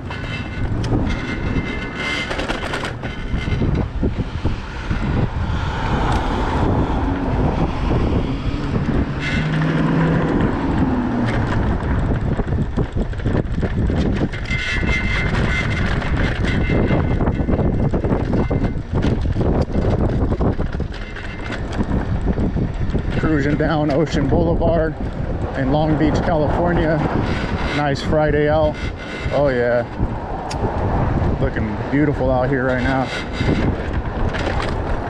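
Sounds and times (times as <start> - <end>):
vehicle passing: 0.0 - 13.0
street traffic: 0.0 - 35.0
wind buffeting microphone: 0.0 - 35.0.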